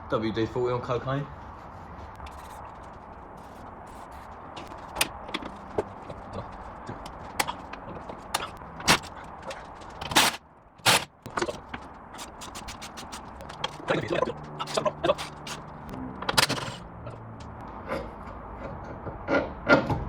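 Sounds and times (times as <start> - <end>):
knocks and clicks of mechanical work: 3.4 - 6.2, 6.8 - 17.6.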